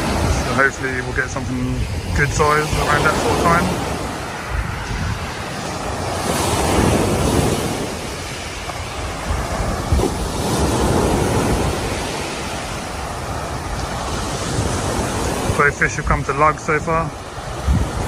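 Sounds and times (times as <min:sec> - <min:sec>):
surf washing onto beach: 0:00.0 - 0:18.0
wind rumbling on microphone: 0:00.0 - 0:18.0.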